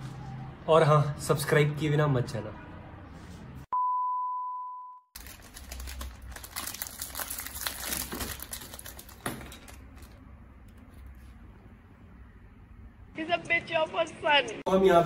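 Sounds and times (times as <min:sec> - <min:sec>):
foil wrapper crinkling: 0:05.2 - 0:10.2.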